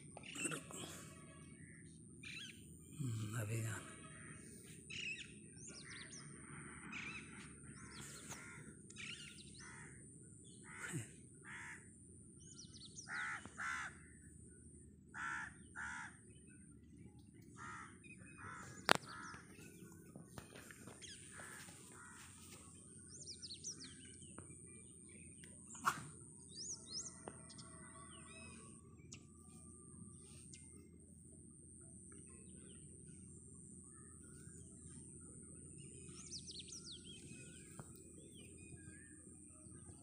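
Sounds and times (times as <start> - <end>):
small birds chirping: 12.4 - 29.4, 32.0 - 40.0.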